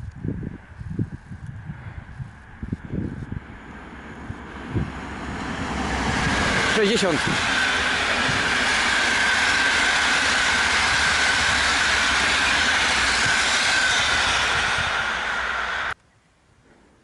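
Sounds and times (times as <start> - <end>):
train wheels rushing on rail: 1.6 - 16.0
high whine: 5.9 - 16.0.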